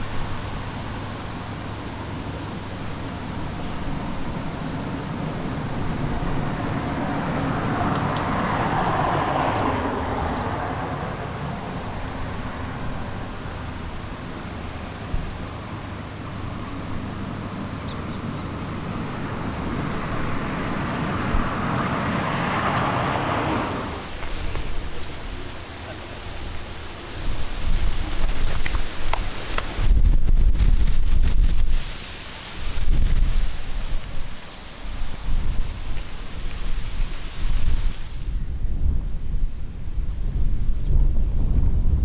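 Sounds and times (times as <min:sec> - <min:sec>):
cars passing: 0:00.0 - 0:30.1
low traffic rumble: 0:00.0 - 0:42.0.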